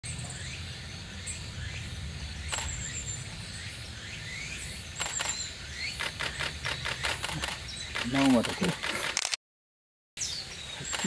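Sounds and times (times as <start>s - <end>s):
steady low rumble: 0.0s - 5.7s
thin high bird calls: 0.2s - 8.9s, 10.2s - 11.0s.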